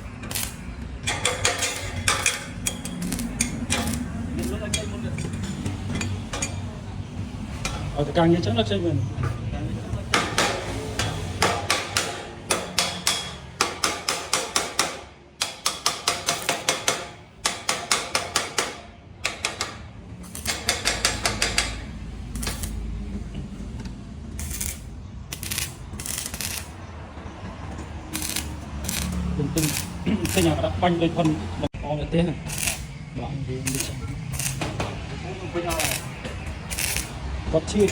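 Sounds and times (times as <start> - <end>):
hand hammering: 10.1 - 19.8, 20.4 - 21.8.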